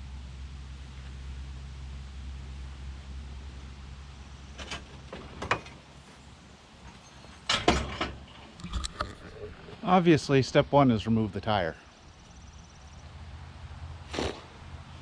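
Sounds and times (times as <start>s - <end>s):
low steady hum: 0.0s - 15.0s
knocks and clatters: 4.6s - 5.8s, 6.9s - 8.9s.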